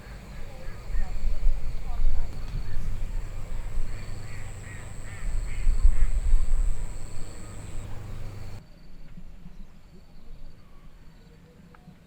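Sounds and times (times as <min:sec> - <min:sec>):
low steady rumble: 0:00.8 - 0:08.6
short animal calls: 0:02.8 - 0:08.6.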